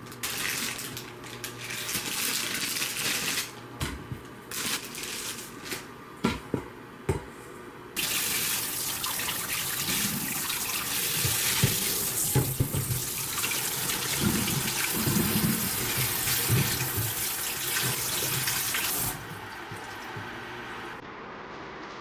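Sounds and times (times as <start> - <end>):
tap water running into sink: 8.0 - 20.4.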